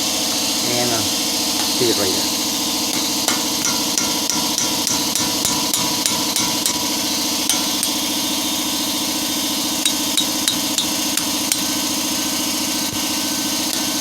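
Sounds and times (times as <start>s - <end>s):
hammer tapping steel punch: 2.9s - 8.2s, 9.8s - 12.0s.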